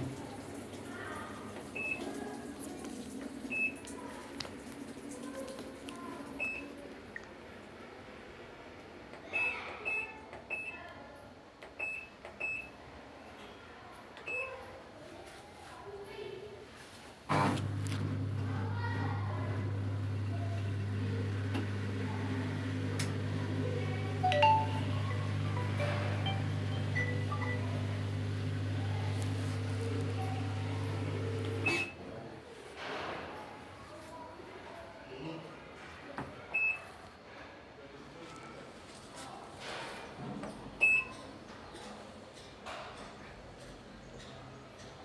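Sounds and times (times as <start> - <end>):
low machine hum: 17.6 - 31.8
faint short high tones: 24.2 - 27.8.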